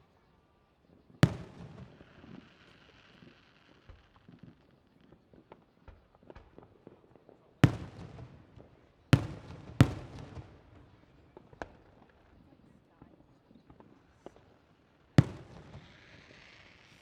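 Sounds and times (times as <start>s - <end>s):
fireworks booming with echo: 1.2s - 4.6s, 5.4s - 12.2s, 15.2s - 17.0s.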